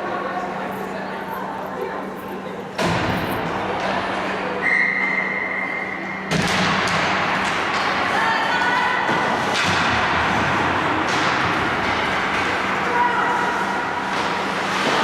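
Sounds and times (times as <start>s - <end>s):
puck and sticks knocking on ice: 9.0s - 15.0s.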